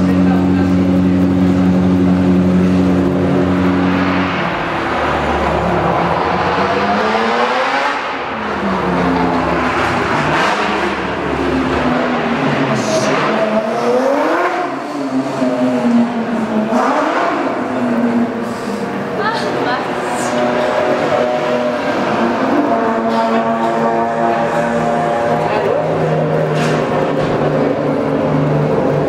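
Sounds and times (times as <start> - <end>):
race car engine revving: 0.0 - 29.0.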